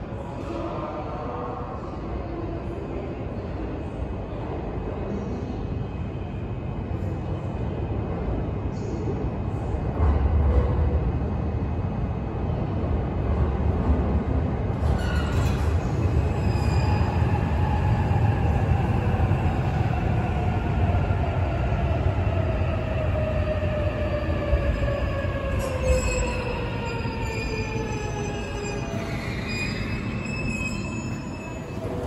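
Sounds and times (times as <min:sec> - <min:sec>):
train wheels rumbling on rail: 0:06.8 - 0:32.0.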